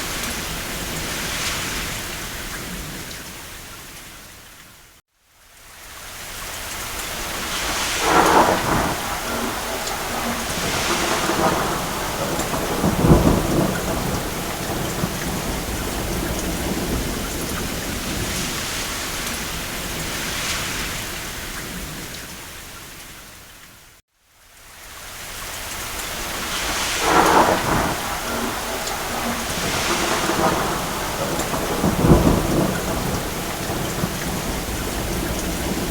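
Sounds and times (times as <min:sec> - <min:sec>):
rain on a roof: 0:00.0 - 0:35.9
thunder rumbling: 0:07.0 - 0:22.2, 0:26.0 - 0:35.9.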